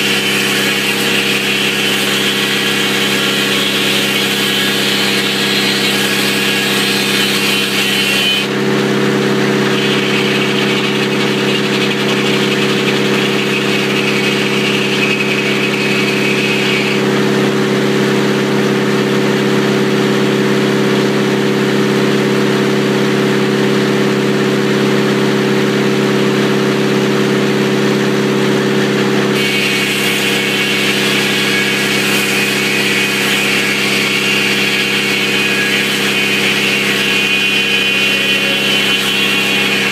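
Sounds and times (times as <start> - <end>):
hissing saw whine: 0.0 - 17.8, 29.3 - 39.9
sawmill engine hum: 0.0 - 39.9.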